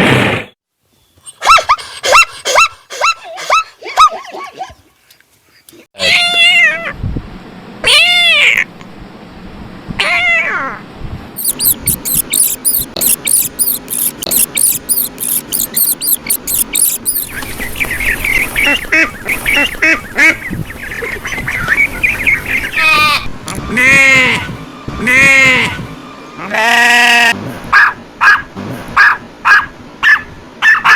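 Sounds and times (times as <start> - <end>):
cat meowing: 6.0 - 7.0, 7.8 - 8.6, 10.0 - 10.8
short repeated animal calls: 11.4 - 17.3.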